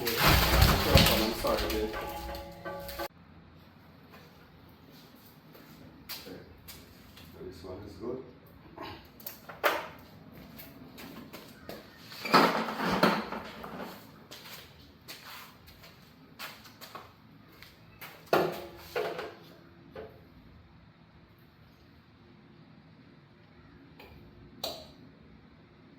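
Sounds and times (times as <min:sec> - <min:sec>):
clattering scrape: 0:00.0 - 0:03.1
hardware knocks and scraping: 0:00.0 - 0:03.1.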